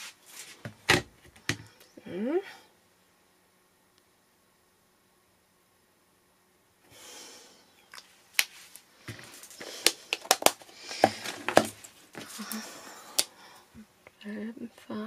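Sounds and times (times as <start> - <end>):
rustling of craft supplies: 0.0 - 1.7, 7.9 - 13.3.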